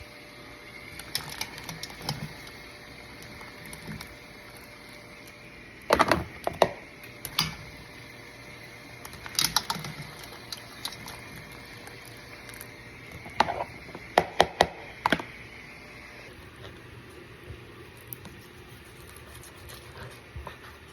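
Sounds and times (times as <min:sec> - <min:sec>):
faint high whine: 0:00.0 - 0:16.4.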